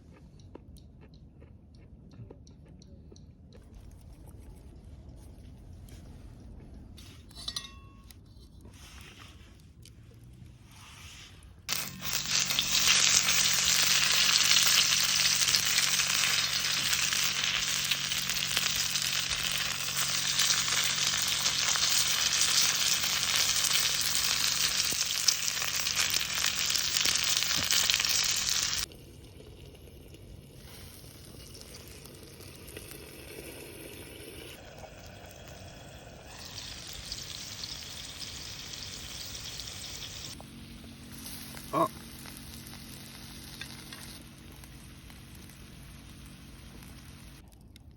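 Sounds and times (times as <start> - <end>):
meat sizzling in a pan: 11.7 - 28.9, 30.6 - 40.4.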